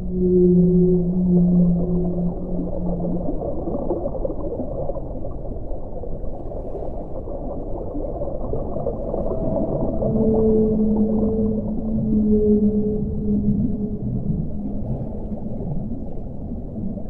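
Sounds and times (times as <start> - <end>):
whale call: 0.0 - 4.8, 8.6 - 17.0
low underwater bubbling rumble: 0.0 - 17.0.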